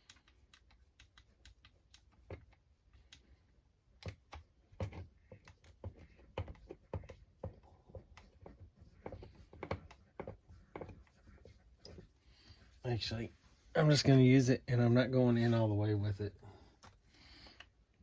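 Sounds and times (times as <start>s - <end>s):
light clicks and taps of parts: 0.0s - 12.2s, 16.8s - 17.8s.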